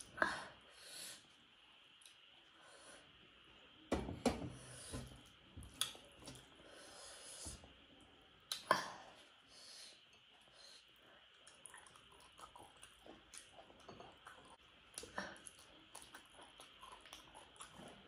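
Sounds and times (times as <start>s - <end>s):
person chewing: 11.3s - 18.0s.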